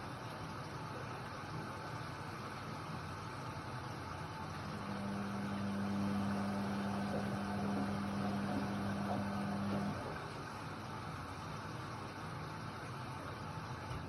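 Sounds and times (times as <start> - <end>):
washer-dryer running: 0.0 - 14.0
steady low hum: 4.4 - 10.4.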